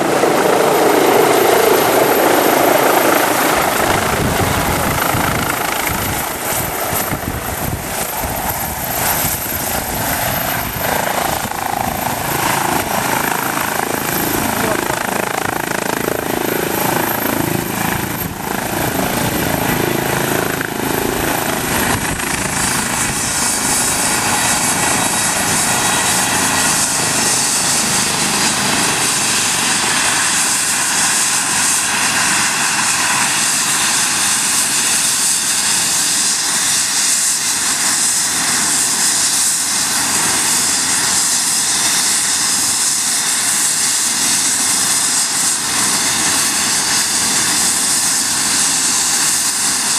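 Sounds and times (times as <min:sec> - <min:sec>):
helicopter rotor and turbine noise: 0:00.0 - 0:49.9.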